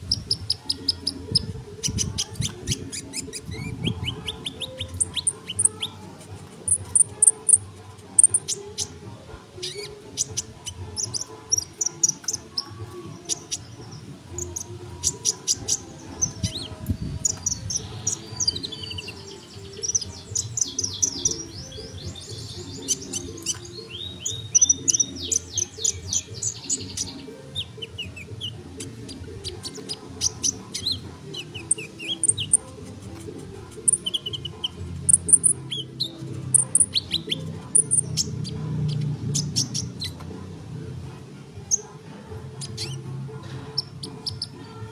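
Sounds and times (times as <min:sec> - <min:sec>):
sunbird chirping and trilling: 0:00.0 - 0:06.0, 0:09.6 - 0:32.8, 0:33.8 - 0:40.2.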